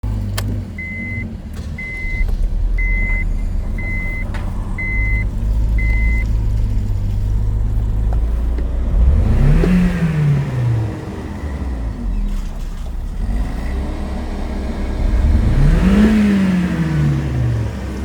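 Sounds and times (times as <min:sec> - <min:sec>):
car engine idling: 0:00.0 - 0:18.0
engine revving: 0:00.0 - 0:18.0
high beep: 0:00.8 - 0:02.2, 0:02.8 - 0:06.2.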